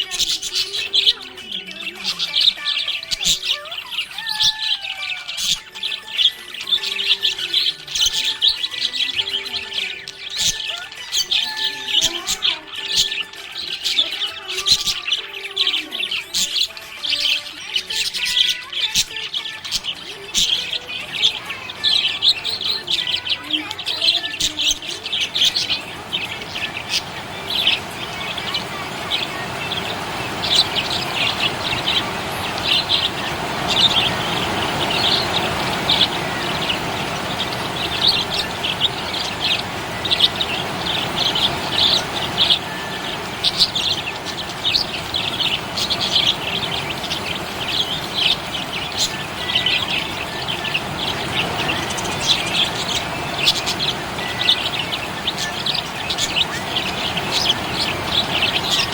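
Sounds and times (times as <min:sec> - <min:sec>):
budgies chirping: 0:00.0 - 0:58.9
warbling whistles: 0:18.1 - 0:58.9
steady rushing noise: 0:19.9 - 0:58.9.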